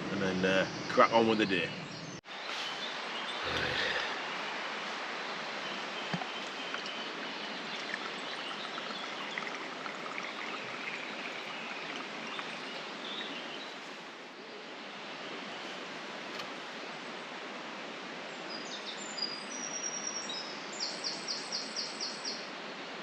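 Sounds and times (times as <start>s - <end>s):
stream water rushing: 2.9s - 18.3s
faint bird chirps: 5.6s - 13.8s.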